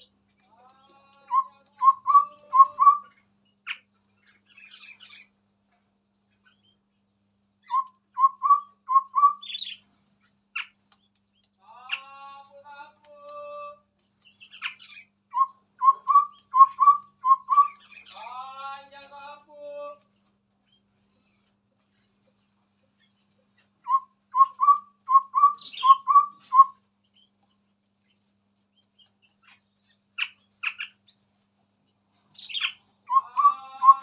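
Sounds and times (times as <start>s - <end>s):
babbler singing low notes: 0.0s - 3.4s, 32.6s - 34.0s
chattering bird calls: 0.0s - 34.0s.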